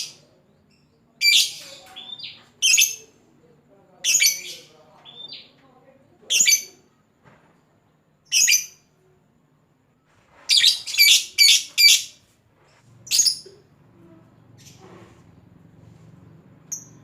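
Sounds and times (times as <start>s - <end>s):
lovebird shrill chirping: 4.0s - 5.5s, 6.3s - 6.8s, 8.2s - 8.9s, 10.5s - 12.2s, 13.0s - 13.6s, 16.7s - 17.0s.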